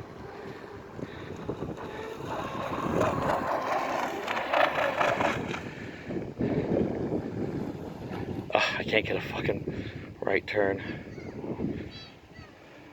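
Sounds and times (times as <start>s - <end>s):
boat hull through water: 0.0s - 9.6s
rc boat motor: 0.0s - 9.8s
wind buffeting microphone: 0.0s - 12.9s.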